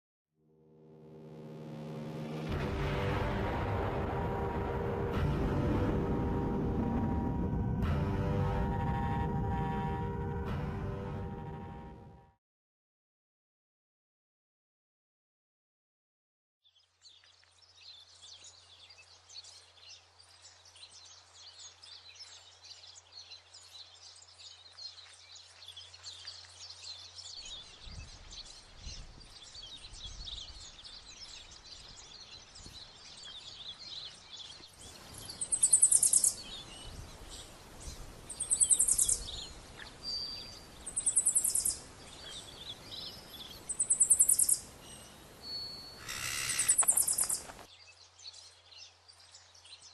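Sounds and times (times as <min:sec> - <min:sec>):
small birds chirping: 0:16.6 - 0:49.9
high rapid trilled bird call: 0:35.4 - 0:36.4, 0:43.7 - 0:44.6, 0:45.8 - 0:47.5.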